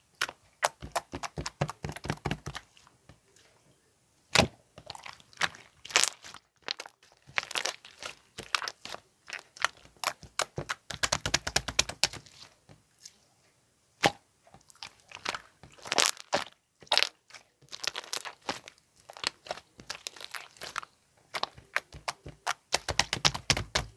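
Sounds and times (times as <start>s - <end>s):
slime squished by hand: 4.3s - 12.5s, 14.0s - 23.9s.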